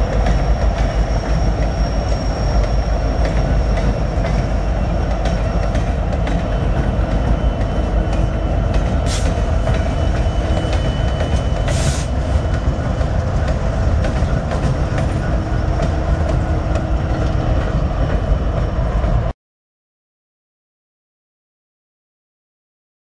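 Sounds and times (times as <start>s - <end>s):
wheels clicking over rail joints: 0.0s - 18.4s
locomotives rumbling past: 0.0s - 19.3s.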